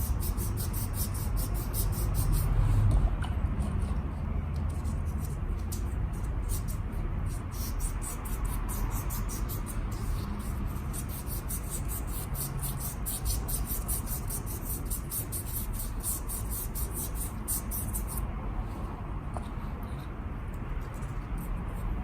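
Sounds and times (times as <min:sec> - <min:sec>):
steady low hum: 0:00.0 - 0:22.0
rapid scrubbing strokes: 0:04.8 - 0:18.2.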